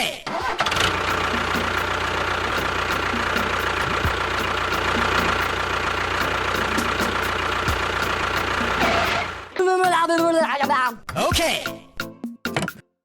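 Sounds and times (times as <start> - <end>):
engine idling: 0.3 - 9.6.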